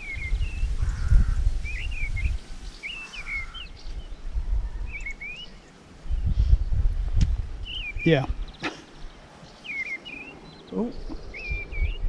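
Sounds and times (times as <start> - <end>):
songbird warbling: 0.0 - 4.1, 7.6 - 12.0.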